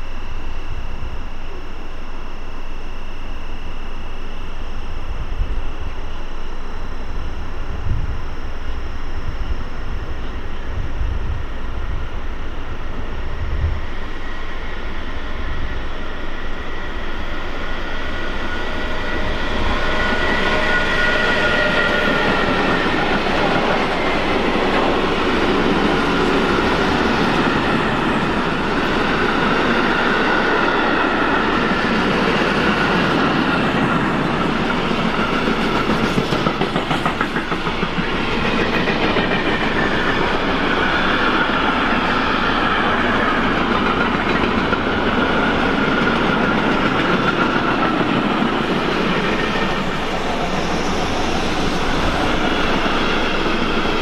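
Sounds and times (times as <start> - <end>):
high steady tones: 11.8 - 54.0.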